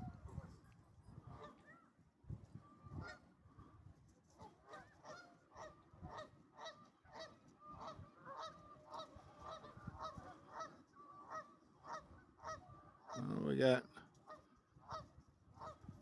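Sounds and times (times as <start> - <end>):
faint waterfowl calling: 9.6 - 13.5.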